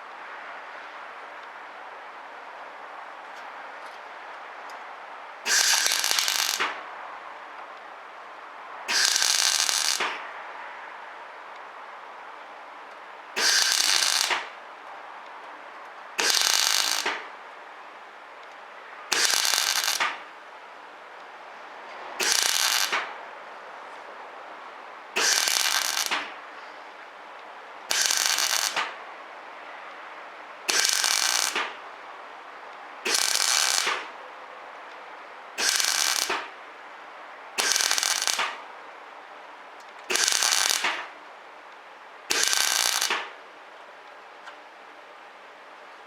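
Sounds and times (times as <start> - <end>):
welder crackling buzz: 5.5 - 6.8, 8.9 - 10.2, 13.4 - 14.5, 16.2 - 17.3, 19.1 - 20.2, 22.2 - 23.1, 25.2 - 26.4, 27.9 - 29.0, 30.7 - 31.8, 33.1 - 34.1, 35.6 - 36.6, 37.6 - 38.6, 40.1 - 41.1, 42.3 - 43.3.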